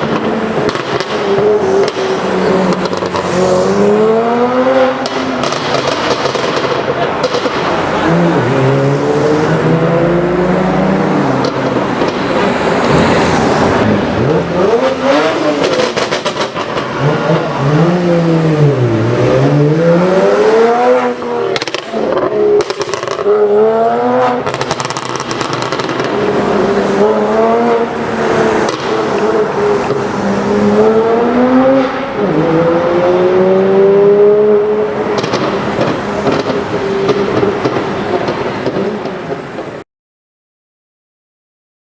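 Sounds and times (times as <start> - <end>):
exhaust crackles and pops: 0.0 - 3.7, 5.0 - 8.2, 10.8 - 19.0, 21.4 - 23.3, 24.3 - 27.2, 28.6 - 30.1, 35.0 - 39.8
car engine revving: 0.0 - 39.8.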